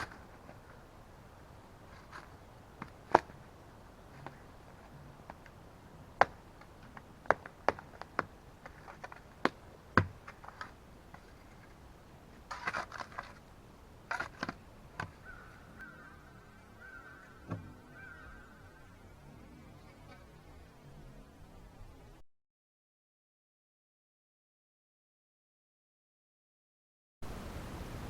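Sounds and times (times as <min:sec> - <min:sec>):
shovel scraping: 0:12.4 - 0:13.5, 0:14.1 - 0:14.6
faint high buzz: 0:17.5 - 0:22.2.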